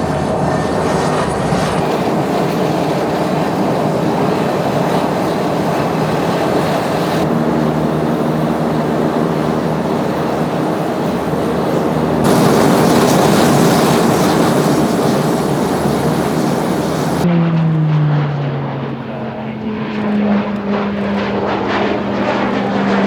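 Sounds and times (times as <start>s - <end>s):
aircraft engine rushing roar: 0.0s - 23.0s
propeller aircraft droning: 0.0s - 23.0s.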